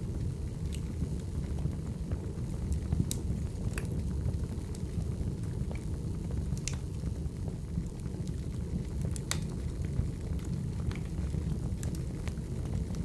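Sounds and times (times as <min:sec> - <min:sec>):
firewood crackling: 0:02.8 - 0:04.0.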